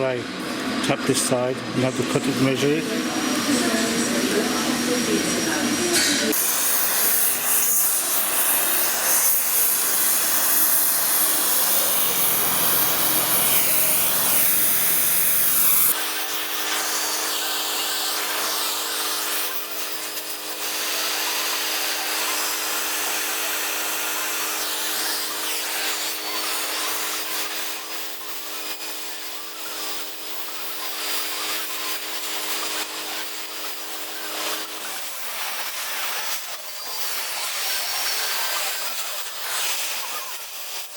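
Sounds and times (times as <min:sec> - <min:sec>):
power tool grinding metal: 0:00.4 - 0:40.9
small machine motor humming: 0:02.2 - 0:40.9.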